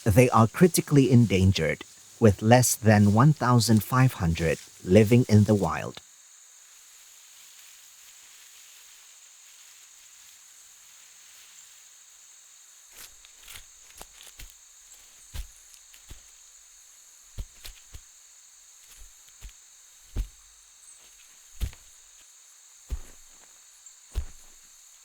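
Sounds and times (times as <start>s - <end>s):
rainforest insects droning: 0.0s - 25.0s
branches snapping: 21.5s - 22.0s, 22.9s - 23.5s, 24.1s - 24.6s.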